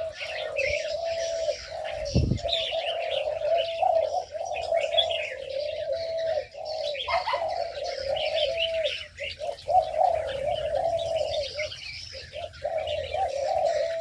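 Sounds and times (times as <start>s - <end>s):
doves cooing: 0.0s - 14.0s
small birds chirping: 0.0s - 14.0s.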